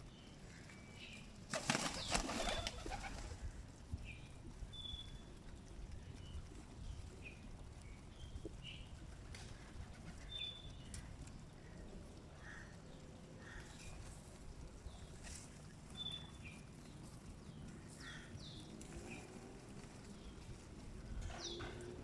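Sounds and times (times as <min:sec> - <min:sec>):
pigeon wings flapping: 0:01.4 - 0:03.6, 0:05.4 - 0:10.3, 0:18.7 - 0:21.8.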